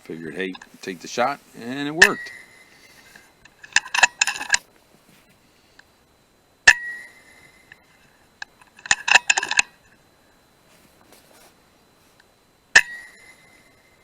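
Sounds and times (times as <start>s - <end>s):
metallic ring: 1.6s - 4.6s, 6.6s - 8.1s, 12.7s - 14.0s.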